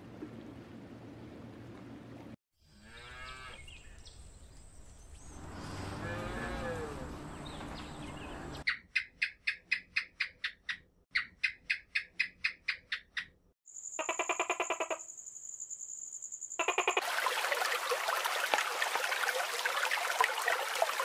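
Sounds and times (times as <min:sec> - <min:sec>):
cattle mooing: 0:02.7 - 0:03.6, 0:05.6 - 0:07.2.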